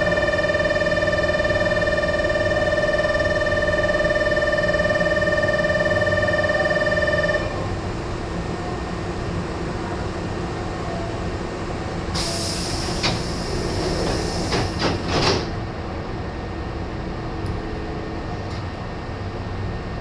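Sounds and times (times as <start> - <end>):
train humming: 0.0 - 20.0
train doors thumping shut: 12.1 - 15.6
compressed air hissing: 12.2 - 14.8.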